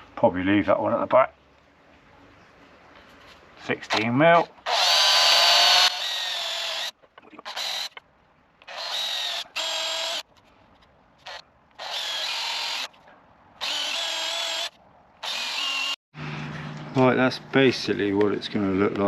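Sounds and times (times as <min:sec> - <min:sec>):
cordless drill boring into wood: 0:04.6 - 0:08.0, 0:08.6 - 0:10.2, 0:11.2 - 0:12.9, 0:13.6 - 0:16.0.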